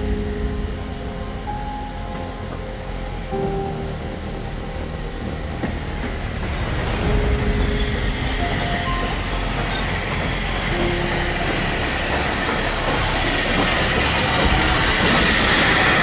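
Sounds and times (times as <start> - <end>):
train rumbling on rails: 0.0 - 16.0
wheel squeal: 4.9 - 16.0.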